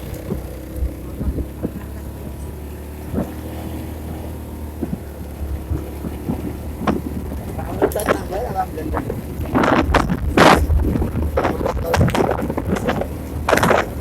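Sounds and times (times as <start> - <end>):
vehicle engine running: 0.0 - 14.0
wind on microphone: 0.0 - 14.0.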